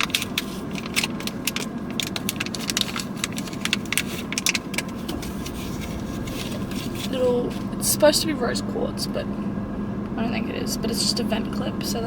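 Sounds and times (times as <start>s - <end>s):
steady low hum: 3.5s - 10.9s.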